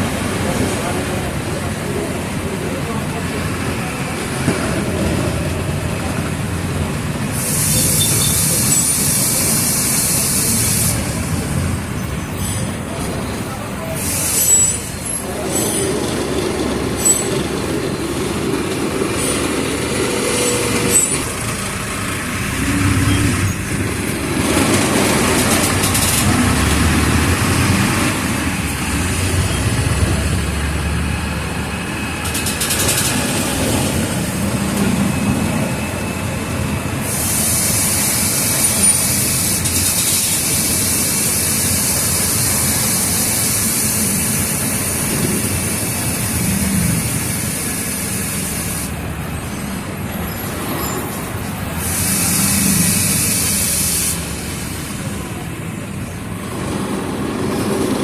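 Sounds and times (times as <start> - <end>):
bus diesel engine running: 0.0 - 58.0
short air hisses: 7.3 - 11.2, 37.0 - 48.9, 51.8 - 54.8.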